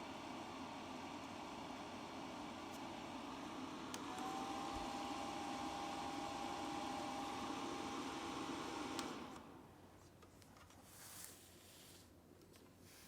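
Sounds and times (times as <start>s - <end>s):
mini fan whirring: 0.0s - 10.3s
click: 3.9s - 4.2s, 9.0s - 9.5s.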